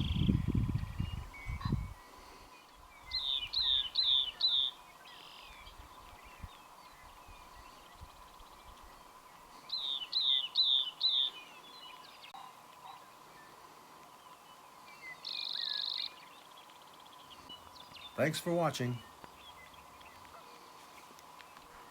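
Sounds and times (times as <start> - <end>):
wind rumble on microphone: 0.0 - 2.0, 5.6 - 9.0
wren singing: 0.0 - 2.0, 2.6 - 13.2, 14.2 - 20.4.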